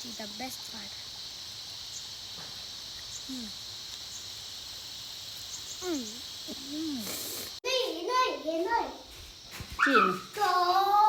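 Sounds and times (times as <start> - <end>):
high-pitched insect chirring: 0.0 - 7.6.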